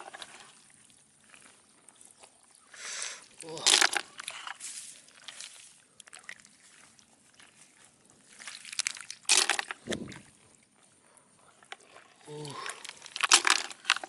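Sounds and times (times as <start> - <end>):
water sloshing and splashing: 0.0 - 14.0
water drips: 0.1 - 10.9.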